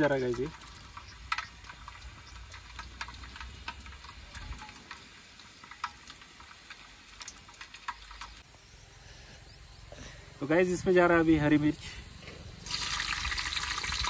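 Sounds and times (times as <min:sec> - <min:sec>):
garlic frying crackles: 0:00.0 - 0:08.6, 0:12.6 - 0:14.0.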